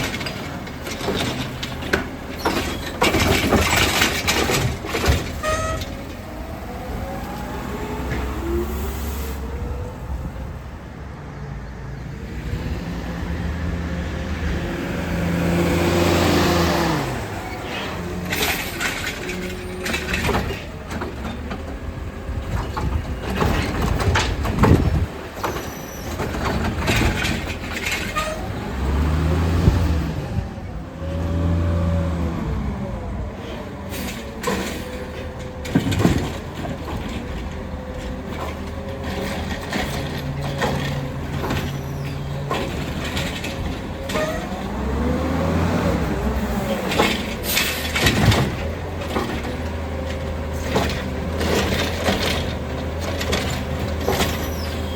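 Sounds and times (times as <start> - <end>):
metal clanks and knocks: 0.0 - 6.2, 18.2 - 21.8, 22.4 - 28.5, 34.0 - 44.8, 46.8 - 54.8
garbage truck engine revving: 12.4 - 54.9.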